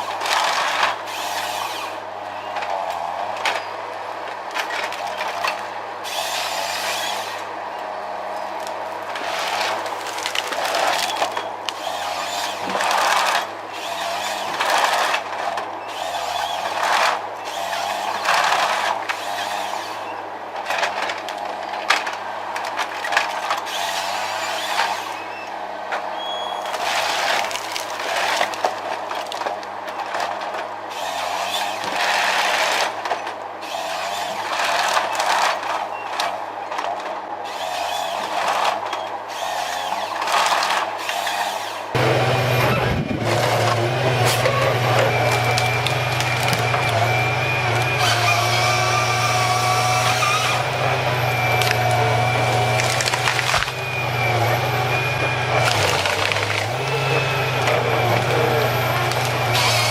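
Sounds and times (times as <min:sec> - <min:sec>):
tree-cutting machinery engine hum: 0:00.0 - 0:59.9
cutting noise surges: 0:41.8 - 0:59.9.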